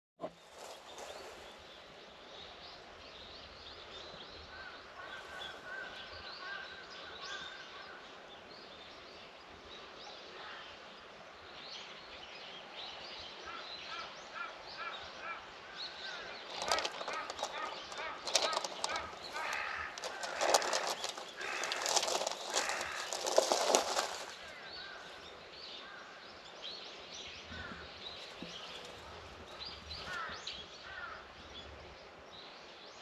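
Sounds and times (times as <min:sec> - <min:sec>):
faint outdoor hiss: 0:00.2 - 0:33.0
birds chirping: 0:16.0 - 0:26.0, 0:27.4 - 0:31.7.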